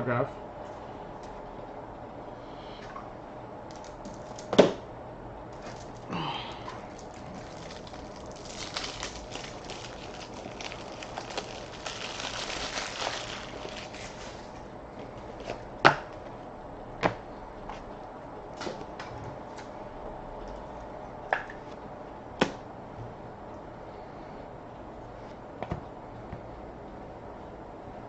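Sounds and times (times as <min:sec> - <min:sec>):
foil wrapper crinkling: 0:05.6 - 0:06.2, 0:06.8 - 0:15.4.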